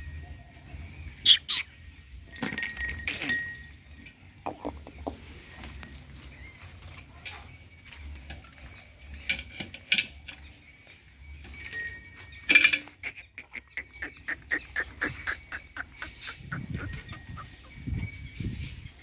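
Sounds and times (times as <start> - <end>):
buffaloes moving about: 0.0 - 19.0
metallic clinks and knocks: 2.2 - 5.0, 6.8 - 18.8.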